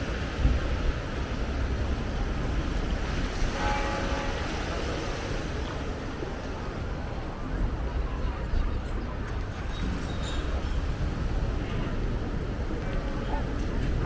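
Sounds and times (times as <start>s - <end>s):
sea surf washing in: 0.0s - 8.1s
wind buffeting microphone: 0.0s - 14.0s.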